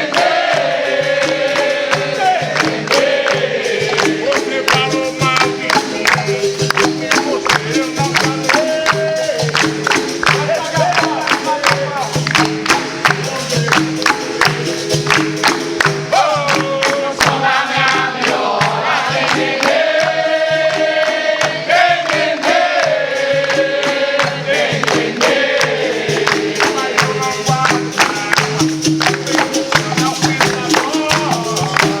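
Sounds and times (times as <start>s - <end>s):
hand percussion strikes: 0.0s - 32.0s
person singing: 3.8s - 9.6s, 26.5s - 32.0s.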